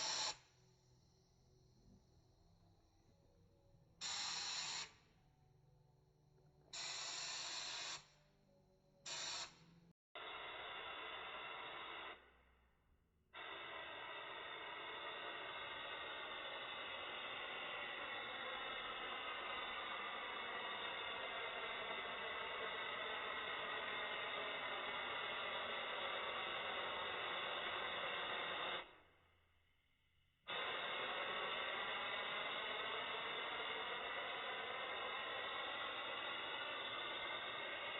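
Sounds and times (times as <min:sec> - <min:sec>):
spray gun hissing: 0:00.0 - 0:00.4, 0:04.0 - 0:04.9.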